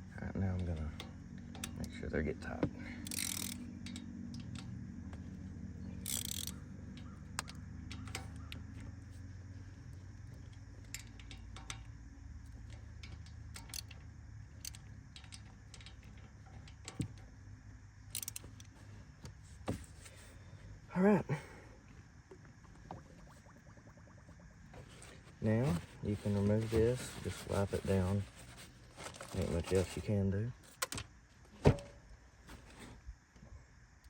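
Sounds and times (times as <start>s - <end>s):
low steady hum: 0.0s - 34.0s
hand tool clicking and scraping: 3.0s - 4.7s, 6.0s - 8.7s, 12.7s - 14.0s, 18.1s - 18.8s.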